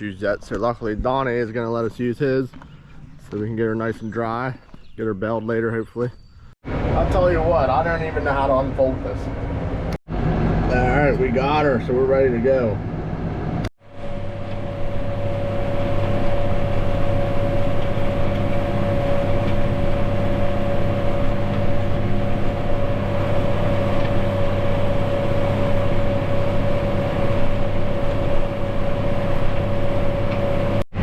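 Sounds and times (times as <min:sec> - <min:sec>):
steady high whine: 0:06.7 - 0:31.0
tractor engine drone: 0:06.7 - 0:31.0.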